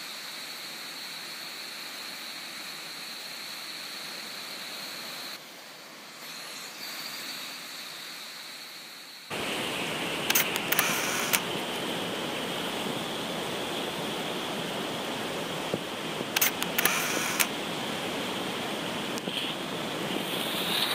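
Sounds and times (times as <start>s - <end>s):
steady rushing noise: 9.3s - 20.9s.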